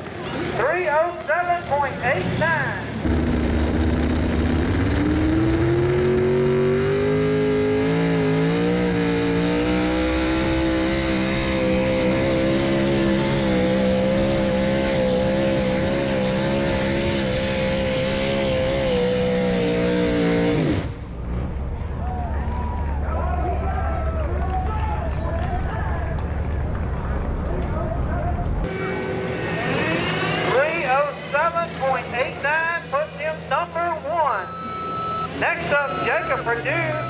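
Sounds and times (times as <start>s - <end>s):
truck engine at full throttle: 0.0s - 37.0s.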